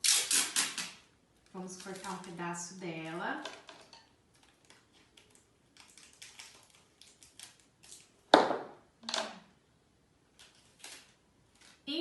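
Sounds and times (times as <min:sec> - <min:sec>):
tape ripping off roll: 0:00.0 - 0:01.1
tape crinkling and tapping: 0:00.6 - 0:02.4, 0:03.0 - 0:09.4, 0:10.3 - 0:11.8.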